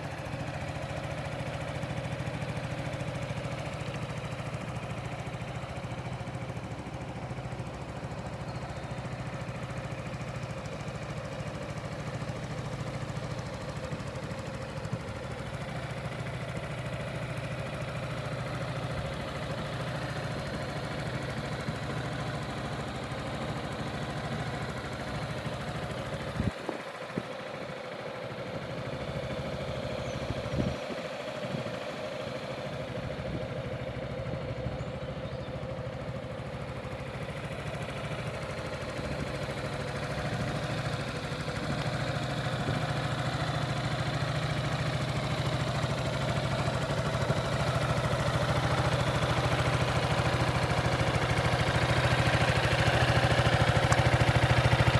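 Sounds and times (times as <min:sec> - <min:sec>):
scooter engine idling: 0:00.0 - 0:54.9.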